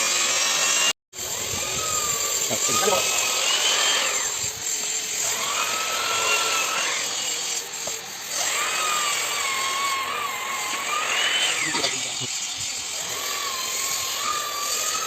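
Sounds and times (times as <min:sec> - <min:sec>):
electric sander motor whining: 0:00.0 - 0:15.0.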